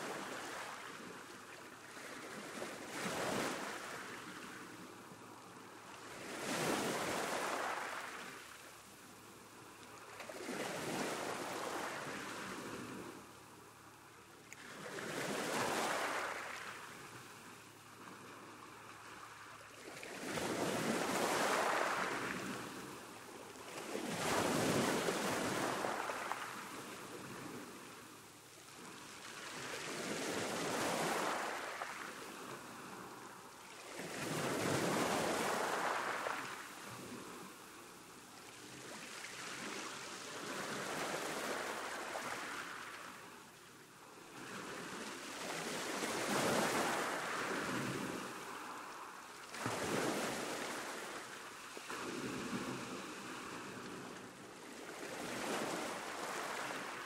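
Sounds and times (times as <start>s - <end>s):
sea waves breaking: 1.9s - 4.8s, 6.1s - 8.6s, 14.6s - 28.0s, 28.7s - 37.6s, 44.4s - 57.0s.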